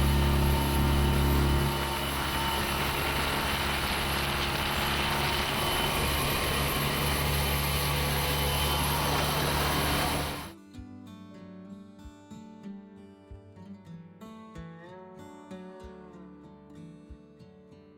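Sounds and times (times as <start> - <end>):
motorboat engine droning: 0.0 - 10.5.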